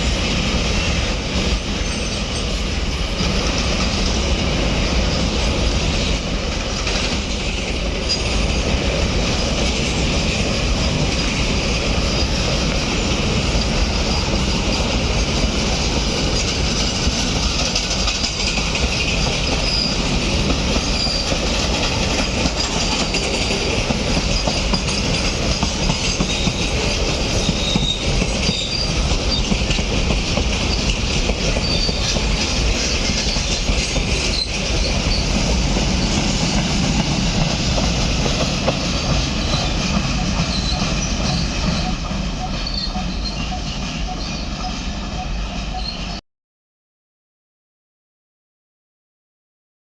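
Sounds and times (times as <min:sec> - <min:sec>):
train wheels rumbling on rails: 0:00.0 - 0:46.2
high-pitched wheel squeals: 0:20.8 - 0:21.4, 0:26.0 - 0:29.6, 0:39.4 - 0:46.2.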